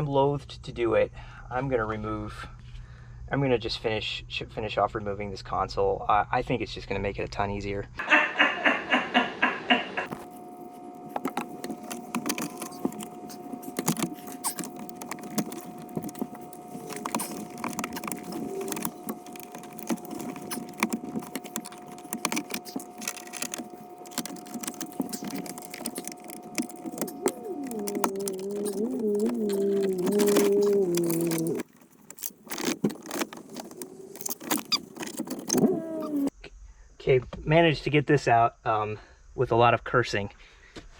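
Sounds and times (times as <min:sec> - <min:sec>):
tools and plastic trim rattling: 0:10.1 - 0:36.3
quick evenly spaced clicks: 0:11.0 - 0:35.6.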